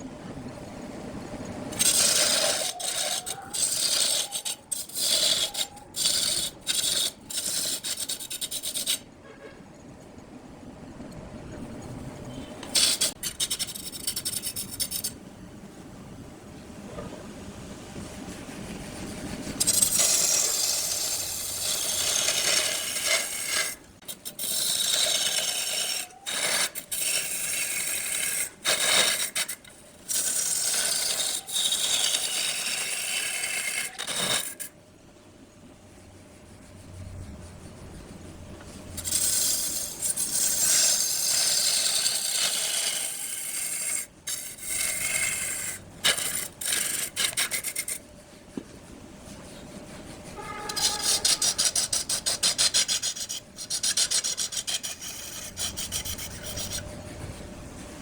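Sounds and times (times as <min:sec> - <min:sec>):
wood lathe tool scraping wood: 0:01.7 - 0:09.1, 0:12.6 - 0:15.1, 0:18.5 - 0:34.7, 0:38.6 - 0:48.0, 0:49.4 - 0:57.4.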